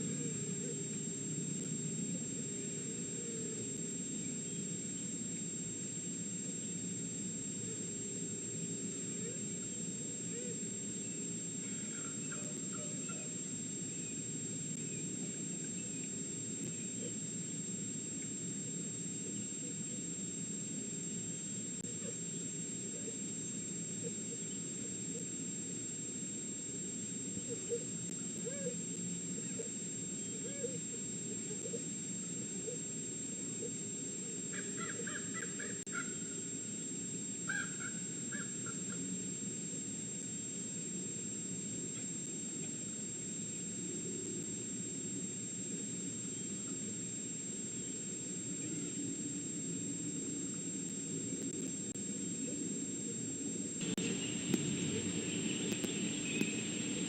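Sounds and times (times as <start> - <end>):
outdoor background hiss: 0.0 - 57.0
thin high whine: 0.0 - 57.0
crow cawing: 34.5 - 36.2, 37.5 - 38.9
low background noise: 53.8 - 57.0.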